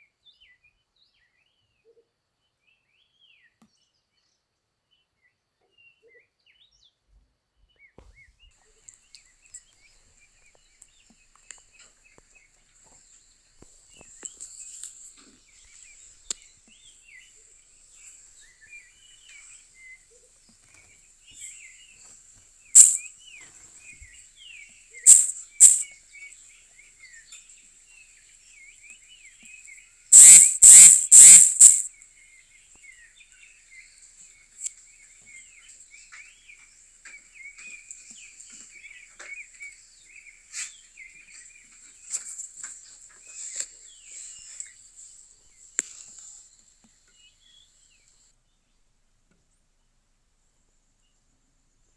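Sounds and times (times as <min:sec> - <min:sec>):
loud sharp bursts: 0:22.8 - 0:23.0, 0:25.1 - 0:25.8, 0:30.1 - 0:31.9
bird chirps and calls: 0:22.8 - 0:23.1, 0:25.1 - 0:25.9, 0:30.1 - 0:31.9
high-pitched insect buzz: 0:22.8 - 0:23.1, 0:25.1 - 0:25.8, 0:30.1 - 0:31.9.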